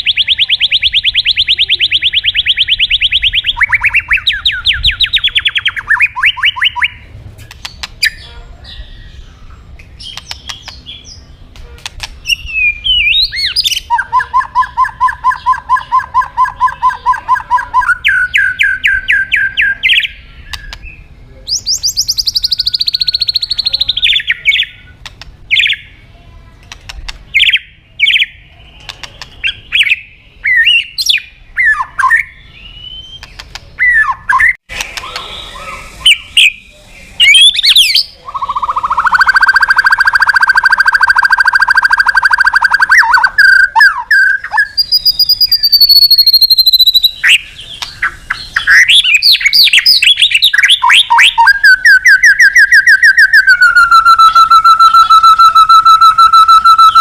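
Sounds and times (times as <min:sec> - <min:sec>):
sharp bird clicks: 0:00.0 - 0:08.3, 0:09.8 - 0:18.5, 0:19.9 - 0:21.0, 0:21.6 - 0:25.8, 0:26.6 - 0:30.0, 0:33.1 - 0:33.7, 0:34.4 - 0:35.4, 0:44.4 - 0:51.5
bird singing varied song: 0:00.0 - 0:57.0.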